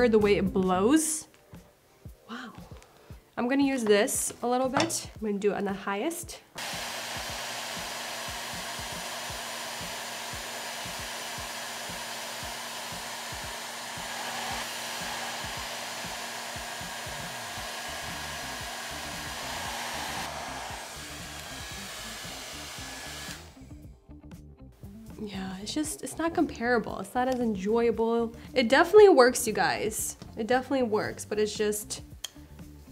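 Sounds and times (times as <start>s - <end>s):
hair dryer blowing: 6.6s - 23.8s.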